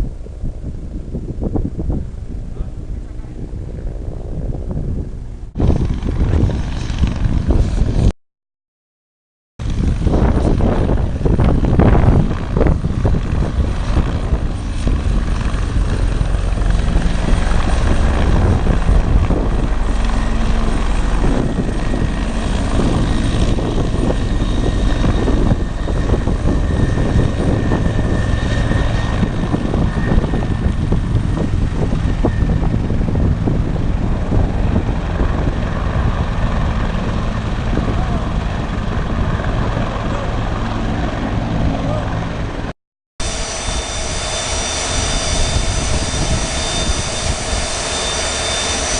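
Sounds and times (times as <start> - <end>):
aircraft engine noise: 0.0 - 8.1, 9.6 - 48.9
faint high whine: 43.2 - 48.9.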